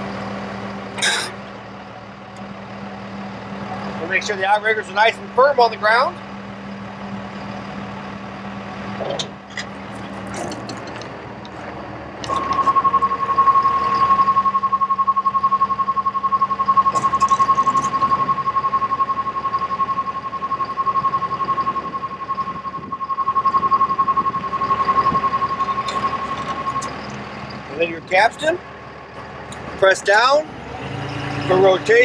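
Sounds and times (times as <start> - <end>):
low hum: 6.2 - 29.9
pulsing warning alarm beep: 12.2 - 30.4, 31.0 - 32.0.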